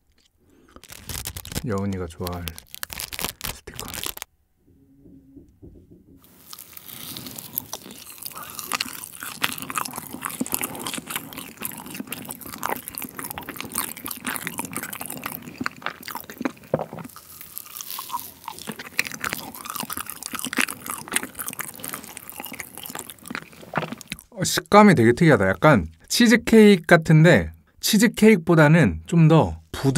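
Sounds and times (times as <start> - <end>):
close chewing with moist smacks: 6.3 - 24.3.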